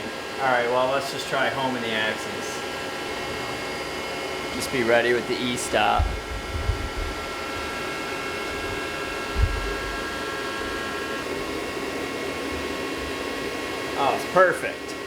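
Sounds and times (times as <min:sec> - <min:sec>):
machine hum: 0:00.0 - 0:15.0
high whining servo tones: 0:04.4 - 0:11.6
low thump: 0:05.9 - 0:10.9.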